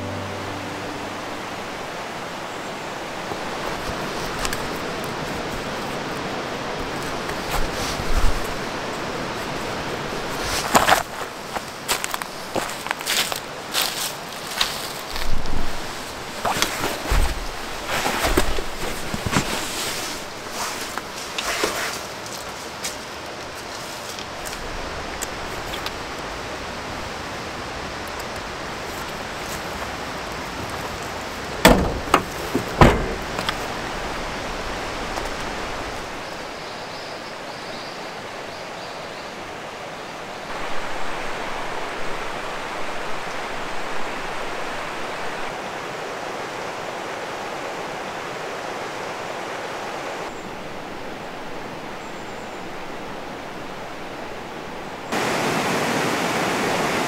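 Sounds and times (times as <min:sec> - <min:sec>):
stream water rushing: 0:00.0 - 0:57.0
loud knocks: 0:31.6 - 0:33.6.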